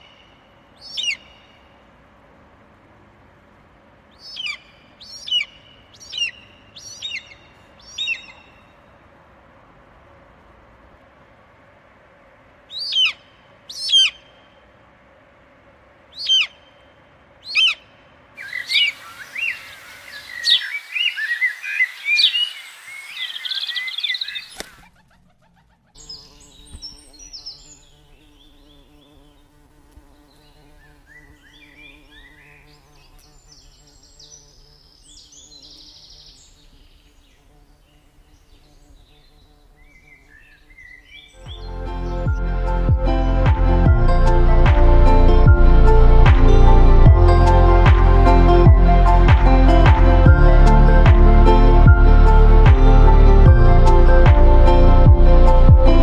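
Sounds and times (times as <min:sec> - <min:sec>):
chorus of birds chirping: 0:00.0 - 0:01.8, 0:04.1 - 0:08.9, 0:12.7 - 0:14.7, 0:16.1 - 0:29.6, 0:30.2 - 0:42.4
birds calling: 0:00.0 - 0:01.9, 0:04.1 - 0:08.9, 0:12.7 - 0:14.7, 0:16.1 - 0:42.4
low steady hum: 0:00.0 - 0:20.9, 0:41.4 - 0:56.0.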